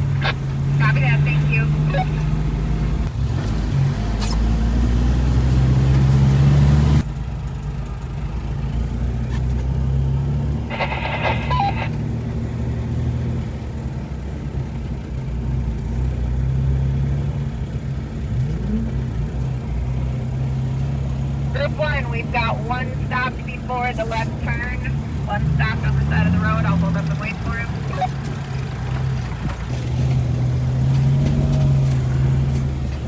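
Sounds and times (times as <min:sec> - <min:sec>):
engine idling inside vehicle: 0:00.0 - 0:03.2, 0:07.0 - 0:09.7, 0:10.6 - 0:12.6, 0:17.2 - 0:30.5
electronic beeping tone: 0:10.7 - 0:12.0.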